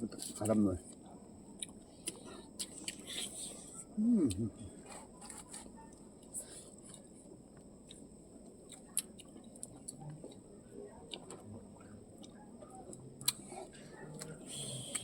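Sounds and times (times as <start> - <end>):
chewing clicks: 6.7 - 10.4, 11.0 - 15.0.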